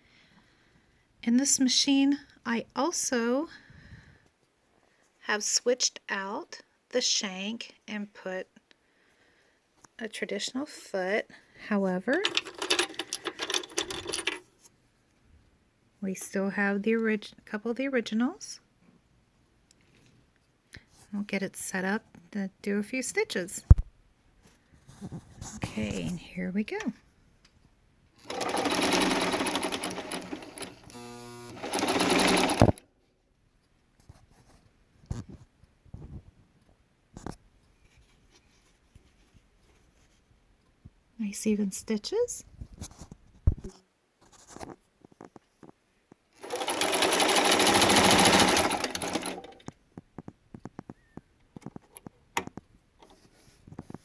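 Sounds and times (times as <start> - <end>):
sewing machine stitching: 12.1 - 14.4, 28.2 - 32.8, 46.4 - 49.7.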